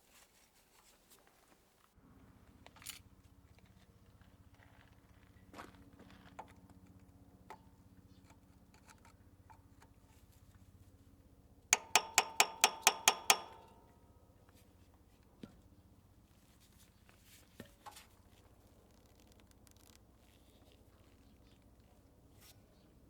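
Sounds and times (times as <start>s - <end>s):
sharp ringing metallic taps: 11.8s - 14.0s.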